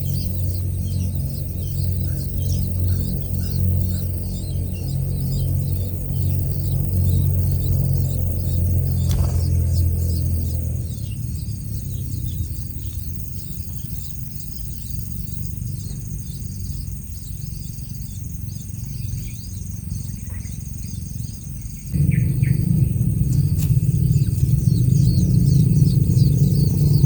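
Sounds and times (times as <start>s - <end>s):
birds chirping: 0.0s - 27.0s
low rumble: 8.8s - 12.7s, 21.9s - 27.0s
loud low sound: 22.0s - 26.4s.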